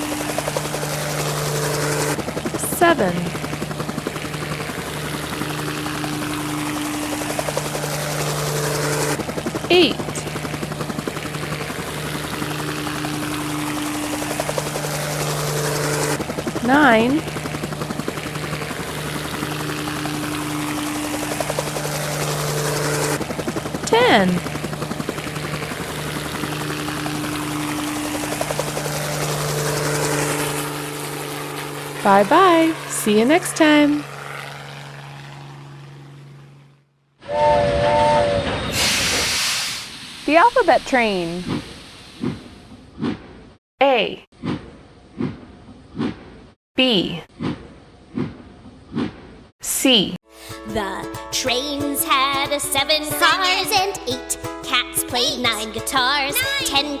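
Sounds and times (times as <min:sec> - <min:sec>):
helicopter rotor blades chopping: 0:00.0 - 0:36.9, 0:38.4 - 0:43.6, 0:50.4 - 0:57.0
low hum: 0:00.0 - 0:43.3
helicopter engine whine: 0:00.0 - 0:43.4, 0:50.3 - 0:57.0
steam train whistle: 0:37.2 - 0:39.7
steam hissing: 0:37.6 - 0:42.7.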